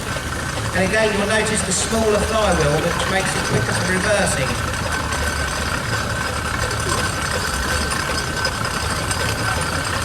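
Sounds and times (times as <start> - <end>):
steamroller rumbling: 0.0 - 10.0
people talking: 0.8 - 5.2.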